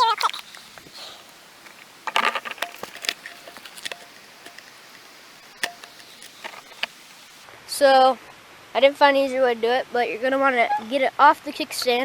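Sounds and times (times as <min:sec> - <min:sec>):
plastic bottle crackling: 0:00.0 - 0:07.4.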